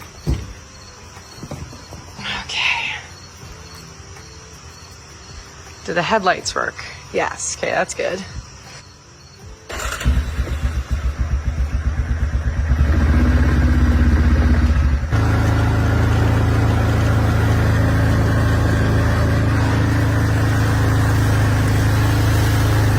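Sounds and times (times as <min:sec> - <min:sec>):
atv engine idling and revving: 0:09.7 - 0:22.9.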